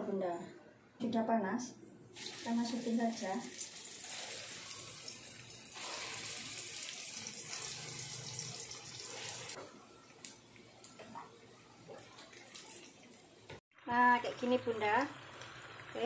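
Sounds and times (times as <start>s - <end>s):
food sizzling in hot oil: 2.2s - 9.6s.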